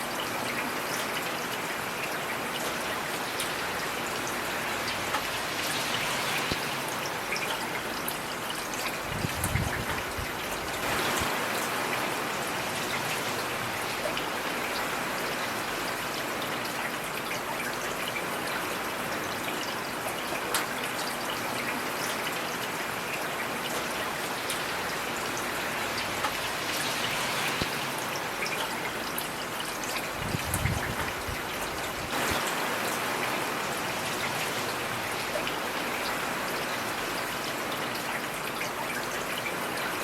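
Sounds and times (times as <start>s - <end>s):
heavy rain hissing: 2.9s - 7.3s, 9.0s - 16.1s, 24.0s - 37.7s.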